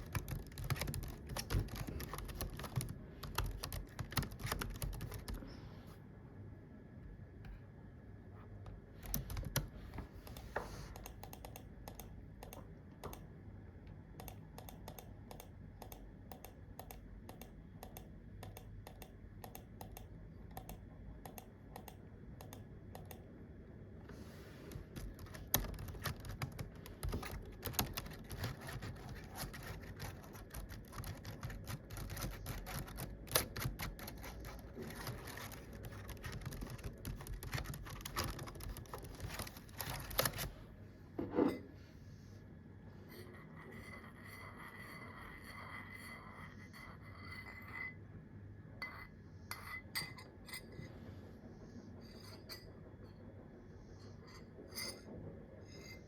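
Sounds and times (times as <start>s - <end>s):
typing on a keyboard: 0.0s - 5.4s, 9.0s - 9.7s, 11.0s - 13.2s, 14.2s - 23.2s, 24.7s - 40.5s.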